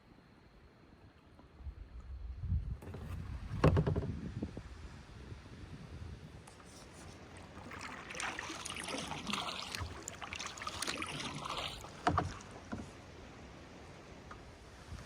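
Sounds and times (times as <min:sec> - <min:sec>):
paddle splashing in water: 0:06.5 - 0:13.5.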